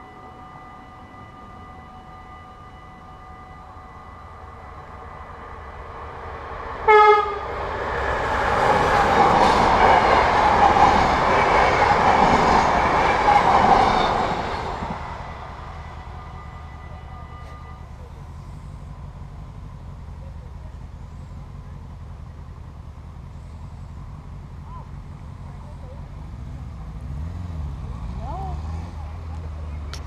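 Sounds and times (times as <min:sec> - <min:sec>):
train horn blast: 0:00.0 - 0:05.6, 0:06.8 - 0:07.6, 0:14.0 - 0:18.5
train wheel and rail noise: 0:00.0 - 0:30.0.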